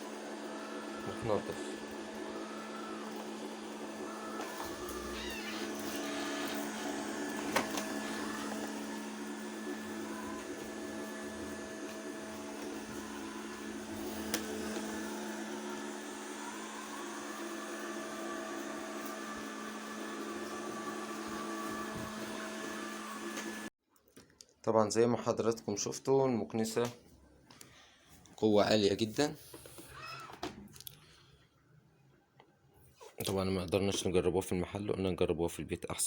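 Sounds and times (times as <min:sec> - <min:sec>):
robot vacuum motor hum: 0:00.0 - 0:23.7.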